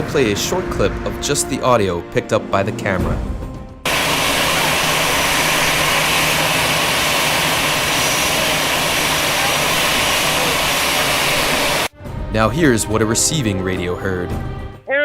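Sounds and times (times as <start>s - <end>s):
high jet whine: 3.9s - 11.9s
jet engines running: 3.9s - 11.9s.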